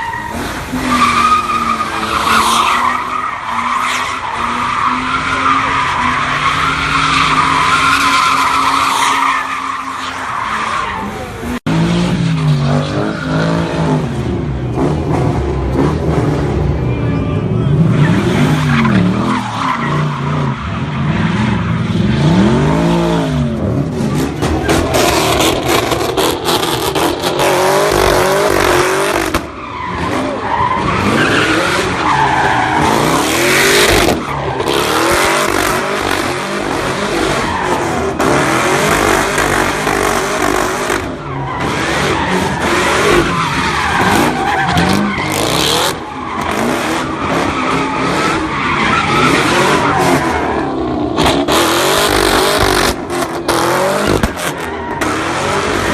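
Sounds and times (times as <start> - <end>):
car engine revving: 17.8 - 55.9.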